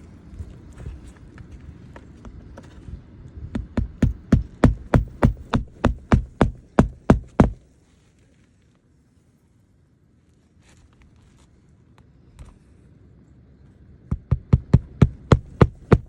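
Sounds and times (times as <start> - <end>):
hammer striking roof shingle: 3.6 - 7.6, 14.1 - 16.0.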